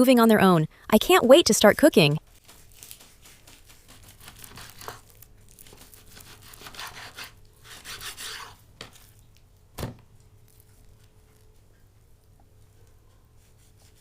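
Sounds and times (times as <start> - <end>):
knife scraping meat: 2.6 - 8.6.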